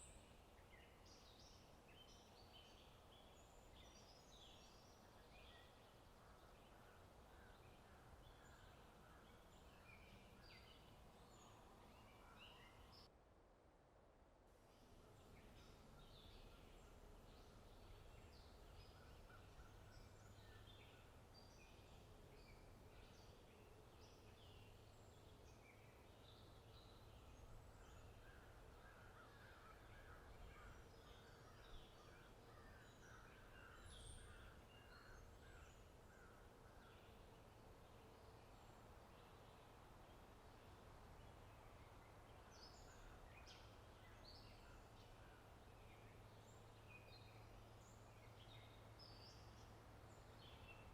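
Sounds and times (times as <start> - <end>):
small birds chirping: 15.2 - 50.9.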